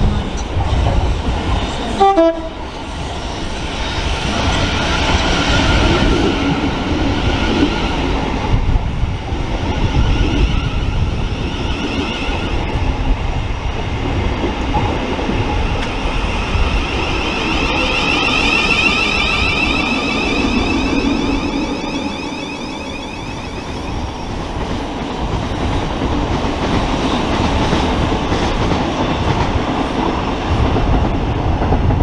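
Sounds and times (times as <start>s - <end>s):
train wheels rumbling on rail: 0.0s - 32.0s
train horn toot: 1.8s - 2.8s.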